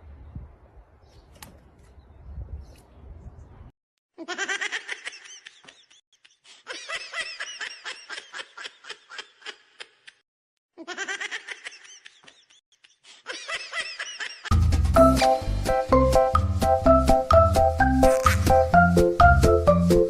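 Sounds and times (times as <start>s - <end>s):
giggling laughter: 4.2s - 10.2s, 10.8s - 14.5s
loud music with bass line: 14.5s - 20.0s.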